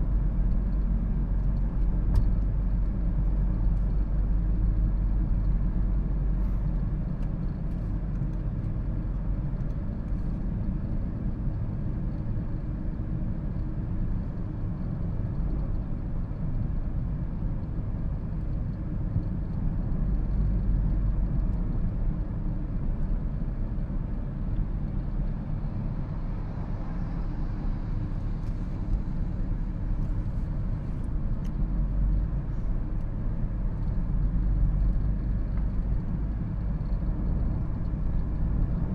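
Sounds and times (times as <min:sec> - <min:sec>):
car road and tyre rumble: 0:00.0 - 0:38.9.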